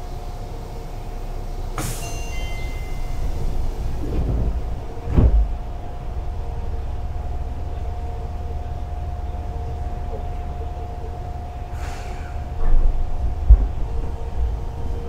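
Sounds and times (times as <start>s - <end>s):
train equipment humming: 0.0s - 15.0s
sliding door thump: 3.4s - 5.9s.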